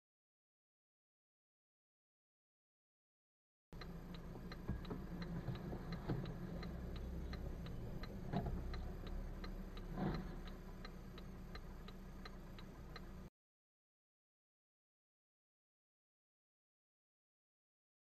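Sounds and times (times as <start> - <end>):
steady ticking: 3.8 - 13.3.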